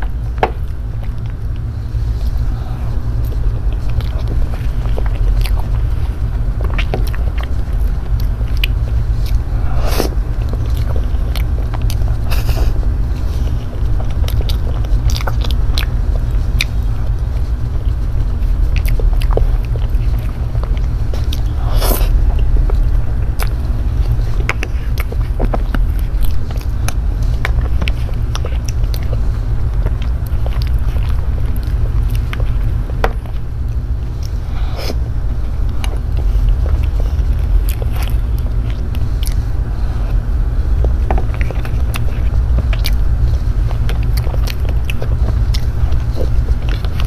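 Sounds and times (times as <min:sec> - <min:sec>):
low rumble: 0:00.0 - 0:47.0
wet chewing: 0:00.0 - 0:47.0.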